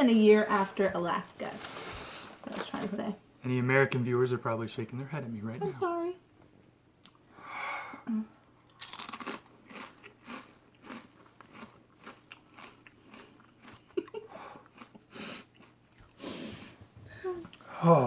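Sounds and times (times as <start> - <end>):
person crunching potato chip: 8.6 - 13.9.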